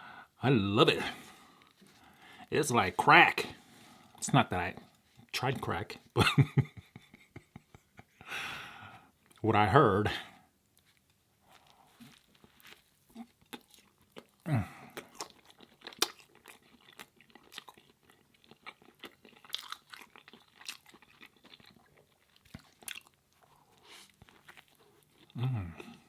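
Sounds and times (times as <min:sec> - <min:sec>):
person chewing and crunching food: 0:01.0 - 0:02.5, 0:10.7 - 0:26.0.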